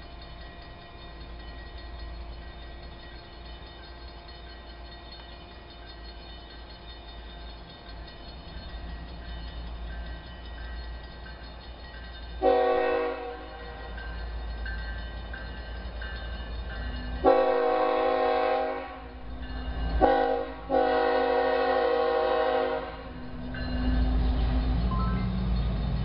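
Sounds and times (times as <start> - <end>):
locomotive engines rumbling: 0.0 - 26.0
locomotive air horn blasts: 12.4 - 13.8, 17.2 - 19.2, 20.0 - 23.2.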